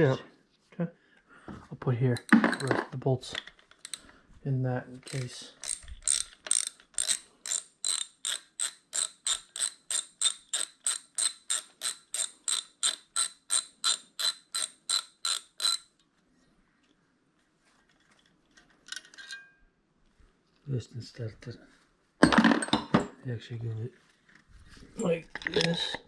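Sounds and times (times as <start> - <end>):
socket ratchet clicking: 3.8 - 4.1, 5.0 - 15.9.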